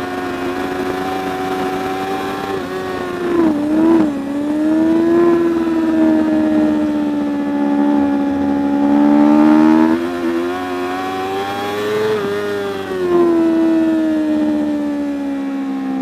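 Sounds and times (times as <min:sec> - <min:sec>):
motorcycle engine at high revs: 0:00.0 - 0:16.0.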